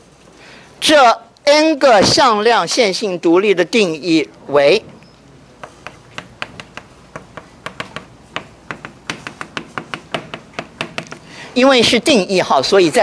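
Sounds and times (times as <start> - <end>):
chalk tapping on blackboard: 5.6 - 11.2.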